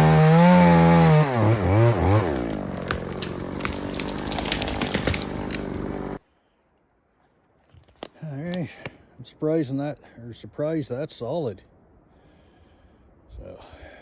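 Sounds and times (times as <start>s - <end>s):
chainsaw revving and idling: 0.0s - 6.2s.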